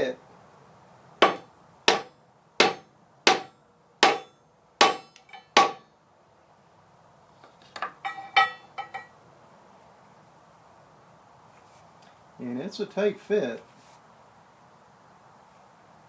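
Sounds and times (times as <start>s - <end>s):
hammer striking metal cap: 1.2s - 5.8s.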